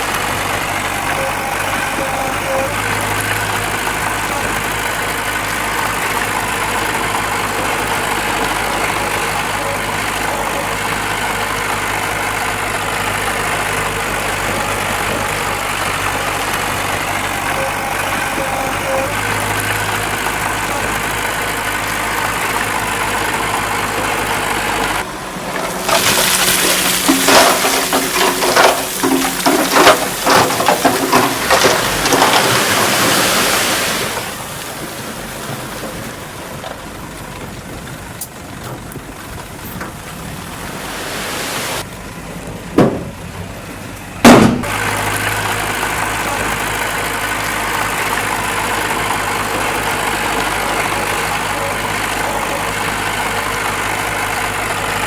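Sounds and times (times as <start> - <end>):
heavy diesel machinery idling: 0.0 - 41.2, 41.8 - 55.0
rocks tumbling and crashing: 0.0 - 43.6
sharp knocks: 44.2 - 44.7.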